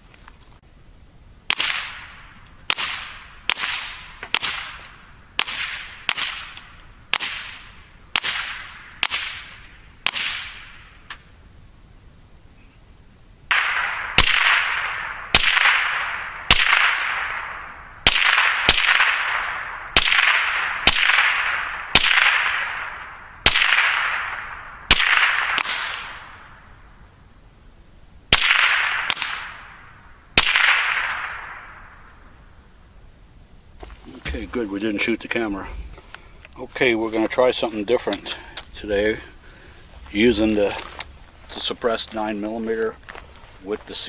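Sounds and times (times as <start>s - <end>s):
rifle shots: 1.5s - 11.1s, 13.5s - 26.8s, 28.3s - 32.2s.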